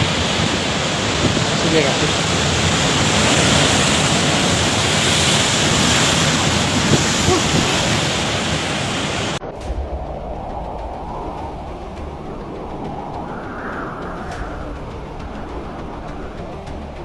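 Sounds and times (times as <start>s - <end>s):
loud rushing roar: 9.4s - 17.0s
low rumble: 9.4s - 17.0s.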